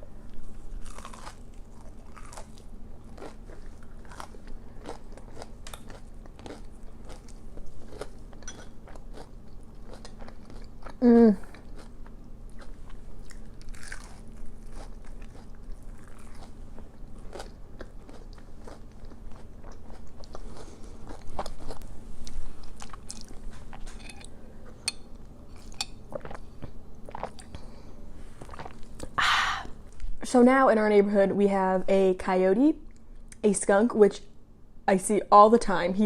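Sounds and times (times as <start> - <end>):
crunching crispy food: 0.6 - 21.9.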